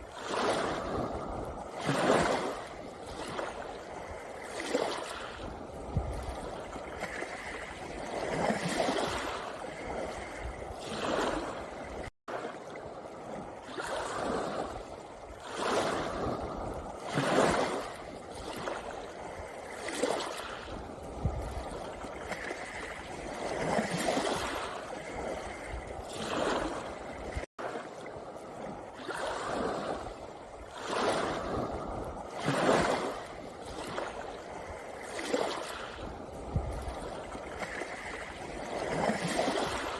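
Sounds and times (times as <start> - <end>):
waves washing over pebbles: 0.0 - 39.9.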